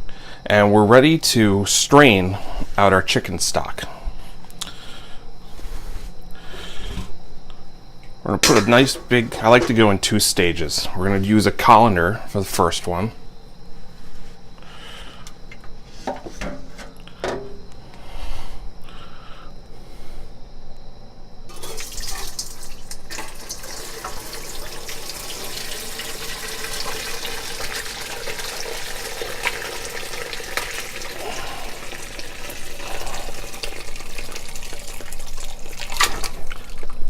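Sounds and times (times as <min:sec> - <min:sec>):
liquid pouring through a colander: 0:21.5 - 0:37.0.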